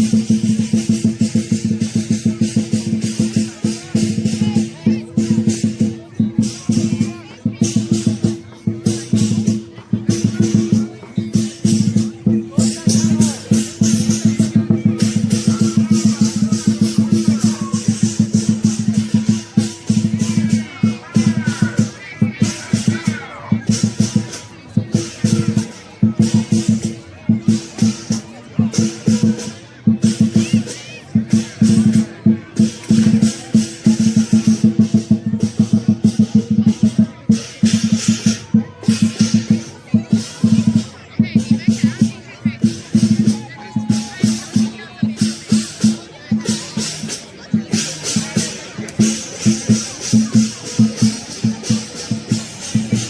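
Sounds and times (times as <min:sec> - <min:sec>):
big drum beaten in a fast roll: 0:00.0 - 0:53.0
crashing cymbals: 0:07.6 - 0:23.0, 0:46.7 - 0:53.0.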